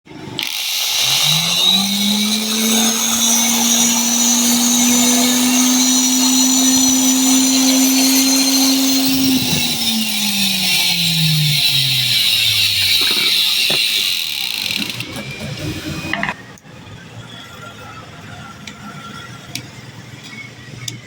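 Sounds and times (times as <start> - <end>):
angle grinder whining: 0.1 - 16.6.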